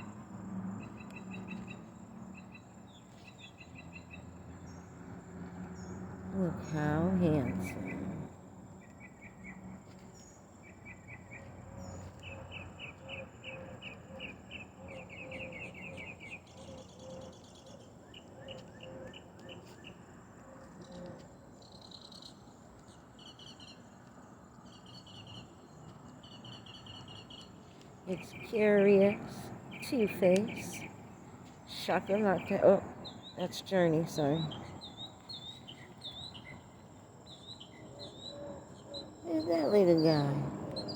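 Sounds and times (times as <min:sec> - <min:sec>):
insects chirping: 0:21.3 - 0:40.9.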